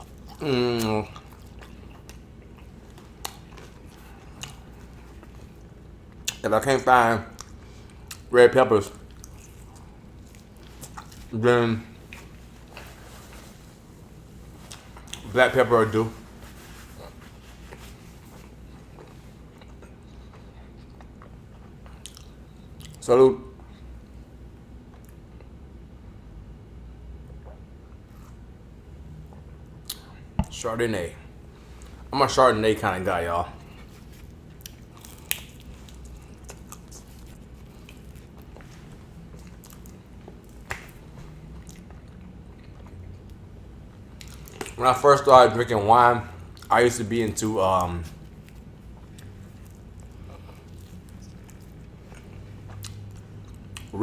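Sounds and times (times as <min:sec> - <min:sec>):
person chewing food: 0:00.0 - 0:06.4, 0:07.3 - 0:08.3, 0:08.9 - 0:11.3, 0:11.9 - 0:23.0, 0:27.3 - 0:28.5, 0:33.5 - 0:44.8, 0:46.4 - 0:54.0
low room hum: 0:00.0 - 0:54.0.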